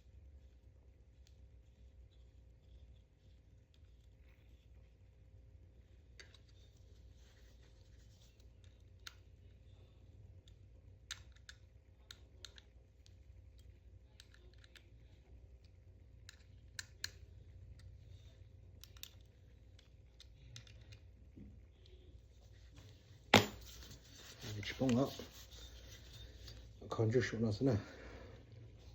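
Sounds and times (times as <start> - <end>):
low steady hum: 0.0 - 28.9
faint clicks and taps: 7.6 - 9.6, 10.3 - 23.0.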